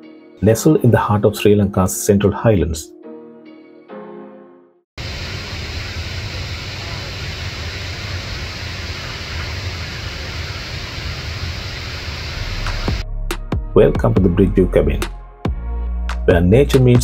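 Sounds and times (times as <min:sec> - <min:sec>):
music: 0:00.0 - 0:04.9, 0:12.6 - 0:17.0
steady rushing noise: 0:05.0 - 0:13.0.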